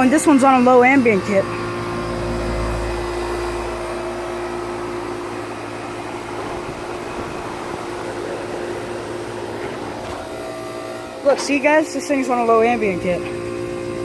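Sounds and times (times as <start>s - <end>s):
compressor hum: 0.0s - 14.0s
fan whirring: 0.0s - 14.0s
deep rumble: 1.6s - 11.8s.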